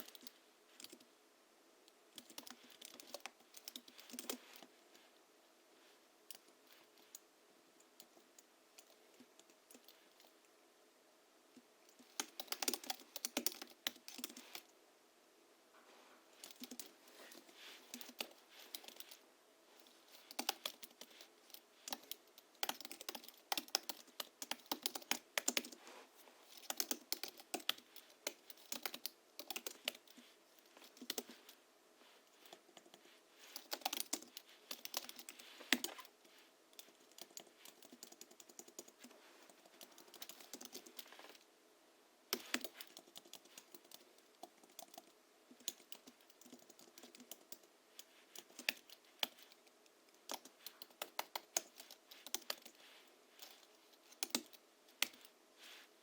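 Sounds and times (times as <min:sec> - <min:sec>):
keyboard typing: 0:00.0 - 0:01.1, 0:02.1 - 0:04.6, 0:11.9 - 0:14.7, 0:16.4 - 0:19.2, 0:19.8 - 0:25.8, 0:26.5 - 0:31.6, 0:32.5 - 0:36.1, 0:36.8 - 0:41.4, 0:42.3 - 0:47.7, 0:48.3 - 0:52.8, 0:53.4 - 0:55.3.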